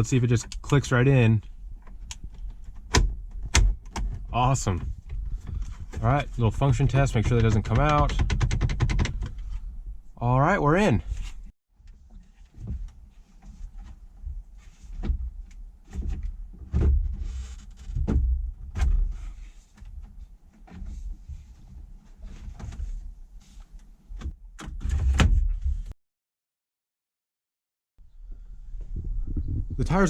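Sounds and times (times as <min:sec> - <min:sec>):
knocks and thumps: 0:02.9 - 0:09.6, 0:15.0 - 0:19.2
low rumble: 0:28.0 - 0:30.0.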